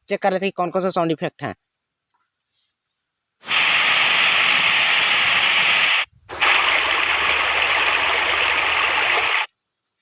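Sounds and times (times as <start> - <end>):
rushing water sound effect: 3.5 - 9.5.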